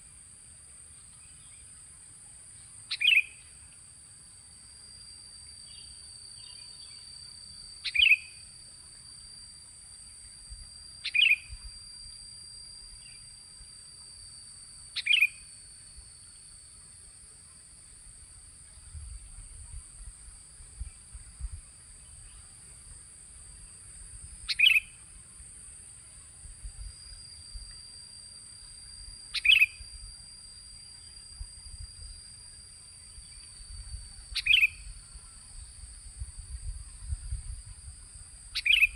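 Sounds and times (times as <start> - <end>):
high insect drone: 0.0 - 38.9
bird call notes: 2.9 - 3.4, 7.8 - 8.4, 11.0 - 11.6, 15.0 - 15.4, 24.5 - 25.0, 29.3 - 29.8, 34.4 - 34.9, 38.6 - 38.9.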